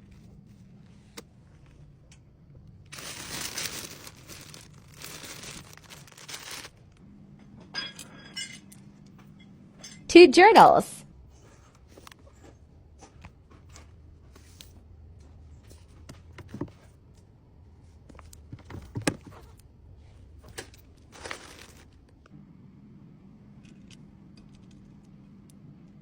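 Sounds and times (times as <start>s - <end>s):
low steady hum: 0.0s - 26.0s
packaging rustling: 2.9s - 7.0s, 20.5s - 22.1s.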